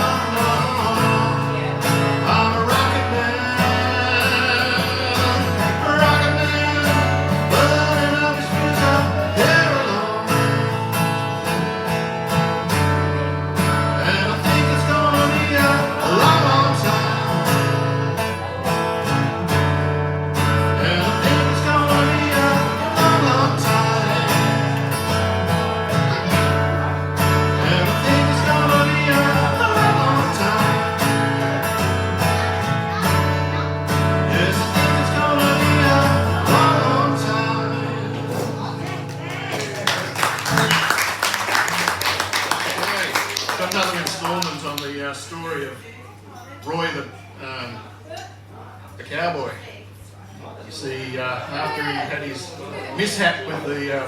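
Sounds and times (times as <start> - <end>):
person singing: 0.0 - 10.8, 14.0 - 17.5, 20.8 - 24.9, 27.5 - 31.2, 34.3 - 38.7
acoustic guitar strumming: 0.0 - 45.2.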